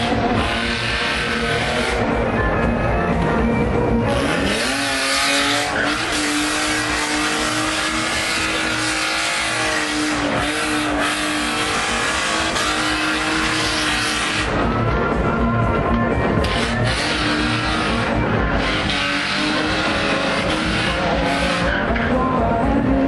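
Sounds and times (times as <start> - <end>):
car engine revving: 0.0 - 23.0
tyres skidding: 0.0 - 23.0.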